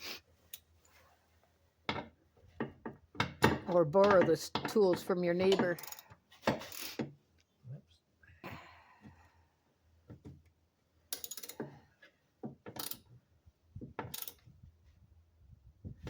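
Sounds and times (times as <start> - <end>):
ratchet wrench clicking: 5.8 - 6.0, 11.1 - 11.6, 12.8 - 13.0, 14.1 - 14.4.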